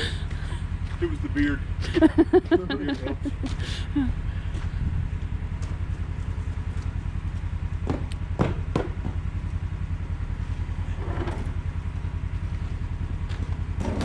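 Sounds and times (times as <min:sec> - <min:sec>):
vehicle engine idling: 0:00.0 - 0:14.0
sharp knocks: 0:07.8 - 0:09.2.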